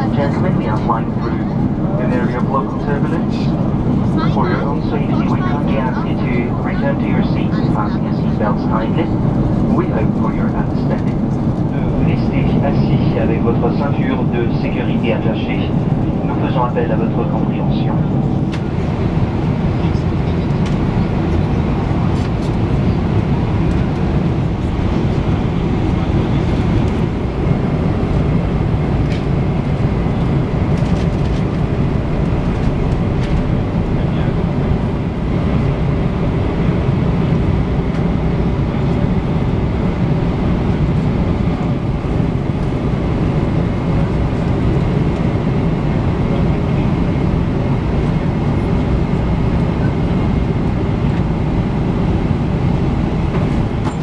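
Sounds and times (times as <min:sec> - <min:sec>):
airplane cabin engine and airflow noise: 0:00.0 - 0:54.0.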